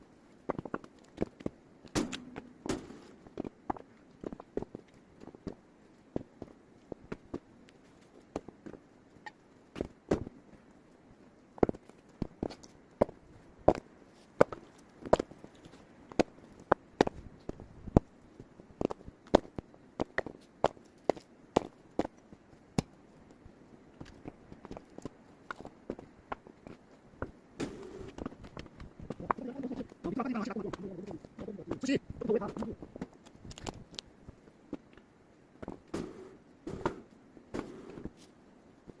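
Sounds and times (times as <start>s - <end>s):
firewood knocking and clattering: 1.9s - 3.8s.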